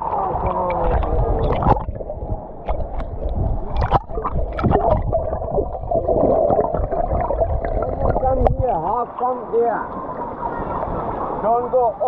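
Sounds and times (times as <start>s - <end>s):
muffled water sloshing and gurgling: 0.0s - 8.9s.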